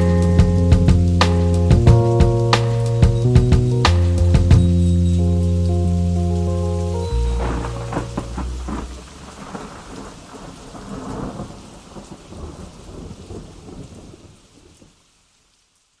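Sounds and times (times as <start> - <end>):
bass notes: 0.0 - 9.4
rain: 0.0 - 16.0
rolling thunder: 7.0 - 14.9.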